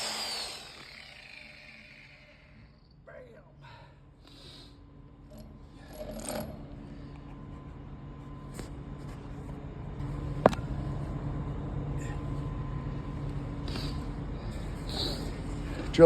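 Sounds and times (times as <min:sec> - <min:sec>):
core drill cutting concrete: 0:00.0 - 0:02.8.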